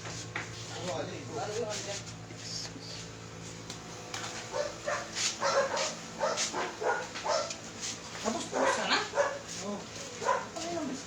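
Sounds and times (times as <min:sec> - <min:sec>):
dog barking in short yaps: 0:04.5 - 0:07.5.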